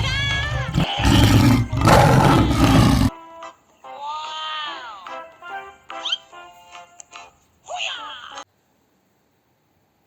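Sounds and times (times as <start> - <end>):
drawn-out wailing cry: 0.5 - 3.1
light background music: 2.8 - 8.4.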